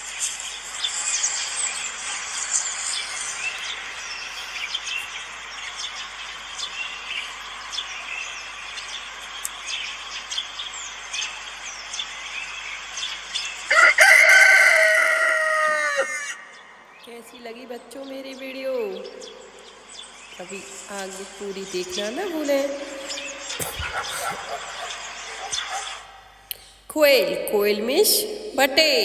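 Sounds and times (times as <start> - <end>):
birds chirping: 0.0 - 29.0
light outdoor hiss: 0.0 - 29.0
rooster crowing: 13.7 - 16.8, 23.0 - 26.1.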